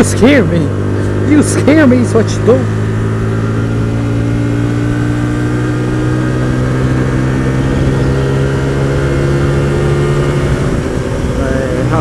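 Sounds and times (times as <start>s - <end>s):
motorcycle engine cruising: 0.0s - 12.0s
low ride rumble: 9.3s - 12.0s.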